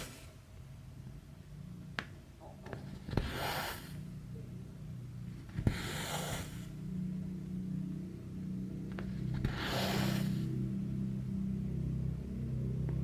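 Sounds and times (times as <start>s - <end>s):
low steady hum: 0.0s - 13.0s
thread rasping through fabric: 2.6s - 4.1s, 5.4s - 6.8s.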